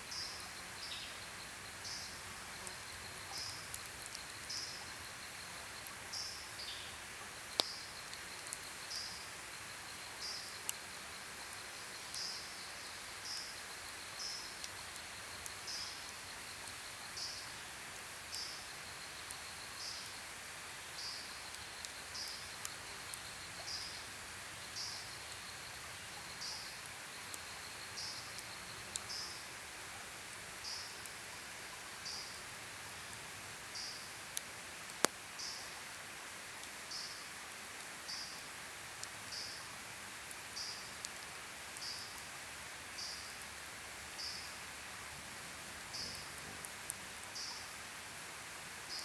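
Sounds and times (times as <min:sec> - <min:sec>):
insect trilling: 0:00.1 - 0:17.6
campfire crackling and popping: 0:00.1 - 0:48.0.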